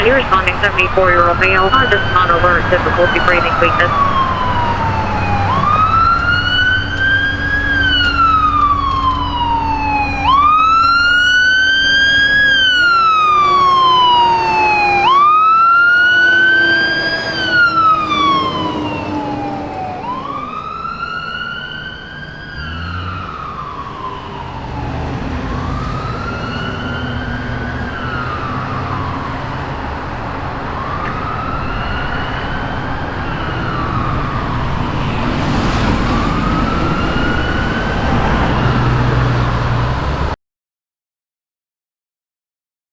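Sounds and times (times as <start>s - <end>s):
fire truck siren wailing: 0.0s - 40.4s.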